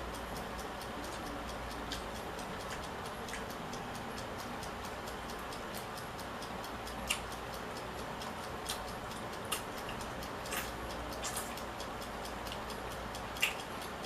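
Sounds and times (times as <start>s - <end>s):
eating mouth clicks: 8.7s - 11.7s, 13.2s - 14.0s.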